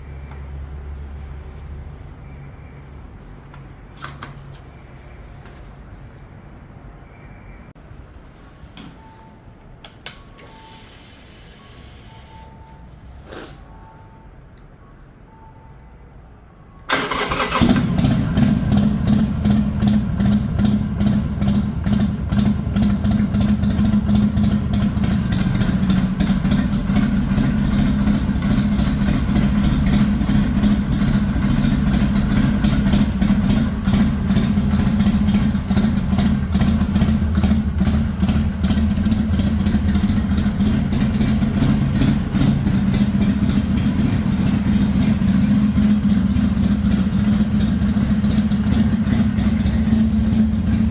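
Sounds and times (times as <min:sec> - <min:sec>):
motorcycle engine idling: 0:16.9 - 0:50.9.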